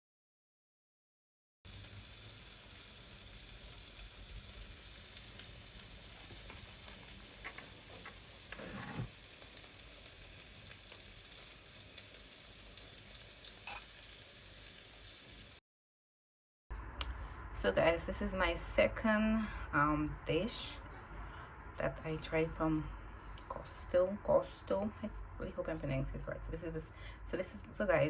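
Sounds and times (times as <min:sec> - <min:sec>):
food sizzling in a pan: 0:01.7 - 0:15.6.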